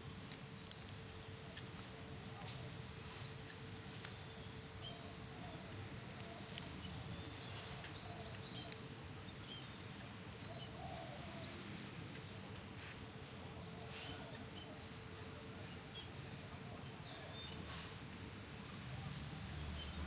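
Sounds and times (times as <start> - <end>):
birds chirping: 2.2 - 12.9.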